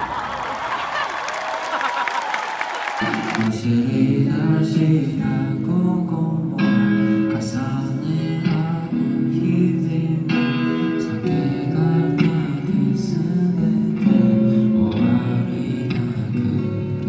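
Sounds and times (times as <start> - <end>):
guitar chords: 3.5 - 17.0.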